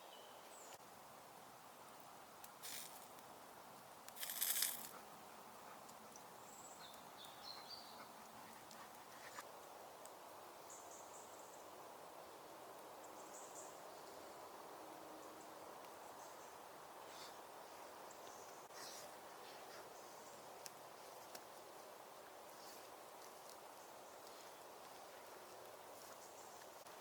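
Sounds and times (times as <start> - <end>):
low steady hiss: 0.0 - 27.0
rustling crunch: 4.1 - 5.0.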